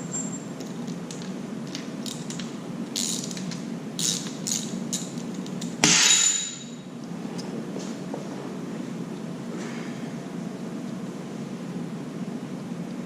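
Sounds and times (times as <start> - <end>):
tools clinking against metal: 4.1 - 6.8.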